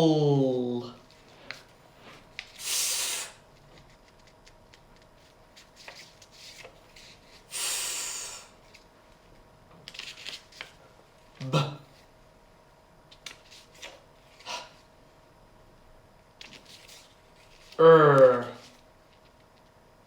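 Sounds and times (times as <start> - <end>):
man making hissed sss sound: 2.6 - 3.4, 7.5 - 8.5.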